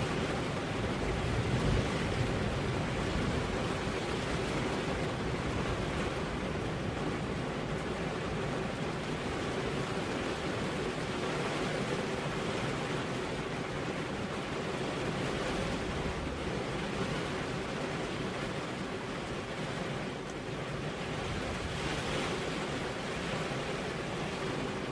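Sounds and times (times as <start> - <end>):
steady rain: 0.0 - 24.9
wind: 0.0 - 24.9.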